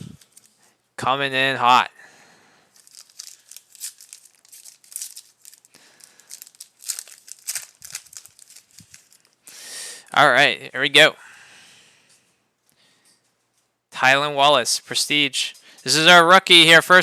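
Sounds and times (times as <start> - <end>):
foil wrapper crinkling and tearing: 0.2 - 0.6, 2.7 - 9.5.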